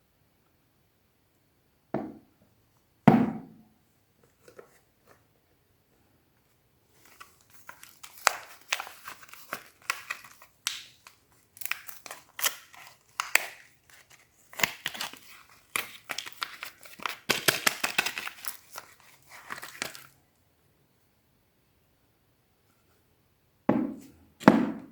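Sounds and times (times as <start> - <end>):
wrapper crackling and tearing: 7.0 - 20.2.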